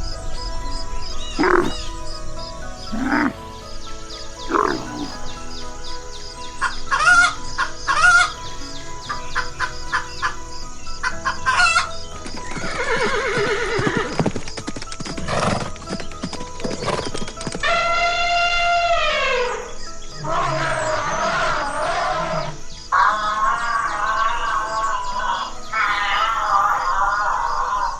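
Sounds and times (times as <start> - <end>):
background music: 0.0 - 27.9
animal calls: 1.2 - 15.7, 16.3 - 27.9.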